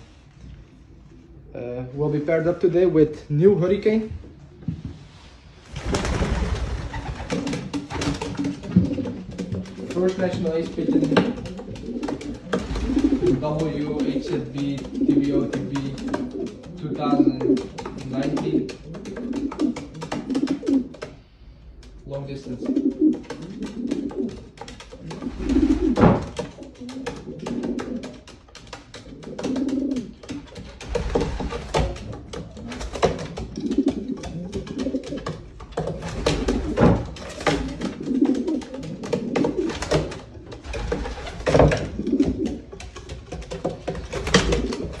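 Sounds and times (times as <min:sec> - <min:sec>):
pigeons cooing: 0:00.5 - 0:02.0, 0:06.1 - 0:45.0
sharp clicks and knocks: 0:26.0 - 0:45.0.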